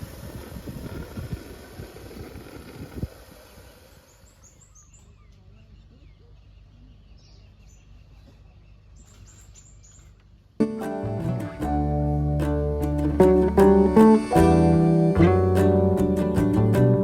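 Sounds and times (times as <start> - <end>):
birds chirping: 3.5 - 10.6.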